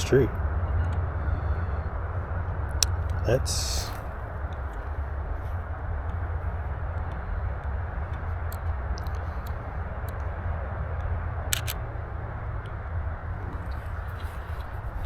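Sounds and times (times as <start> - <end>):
wind buffeting microphone: 0.0 - 15.0
small ticks: 2.7 - 11.9
sharp click: 11.5 - 11.8.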